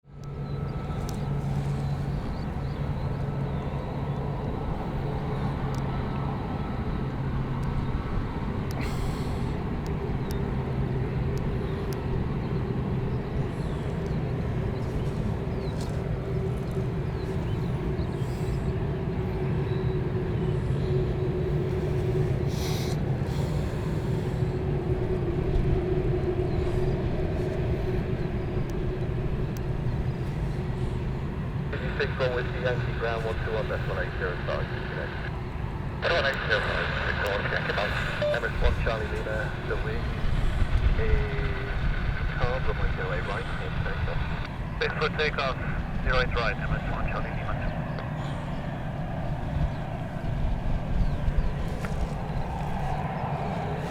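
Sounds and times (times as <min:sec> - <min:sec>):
engine drone: 0:00.0 - 0:53.9
faint clicks: 0:01.0 - 0:01.3.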